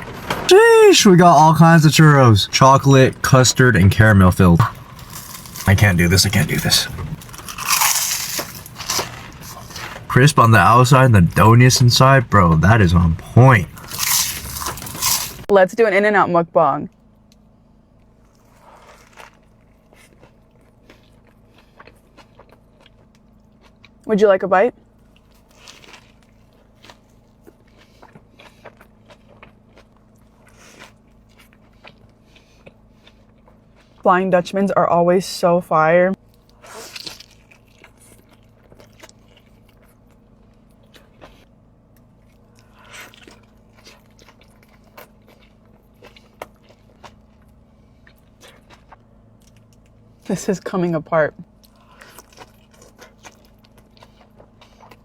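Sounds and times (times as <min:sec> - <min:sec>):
biting and chewing: 0:01.3 - 0:15.5, 0:18.3 - 0:24.0, 0:25.1 - 0:34.0, 0:36.2 - 0:50.0, 0:51.6 - 0:55.0
small crunches: 0:04.4 - 0:11.5, 0:13.4 - 0:15.5.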